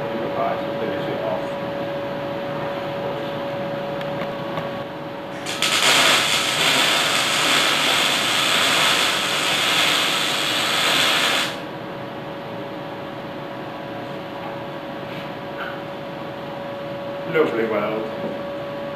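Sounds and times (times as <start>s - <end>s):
welding arc crackling: 5.3s - 11.7s.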